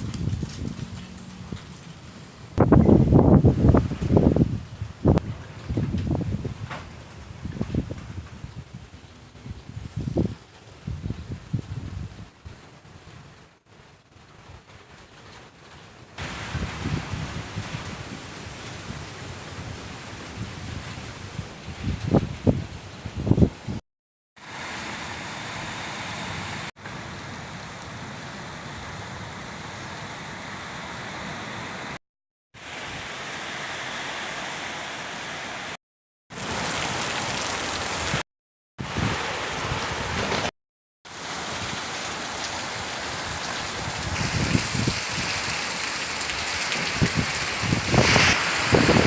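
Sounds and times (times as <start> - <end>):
wind gusts on microphone: 0.0 - 1.8, 2.6 - 13.3, 16.2 - 23.8, 38.8 - 40.5, 43.3 - 45.6, 46.2 - 49.0
heavy rain falling: 12.6 - 22.6, 36.3 - 38.2, 38.8 - 40.5, 41.1 - 49.0.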